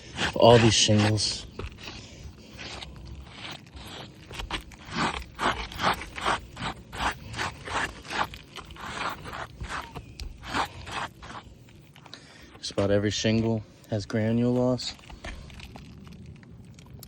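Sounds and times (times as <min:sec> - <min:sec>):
scraping on roof shingles: 0:00.0 - 0:12.9.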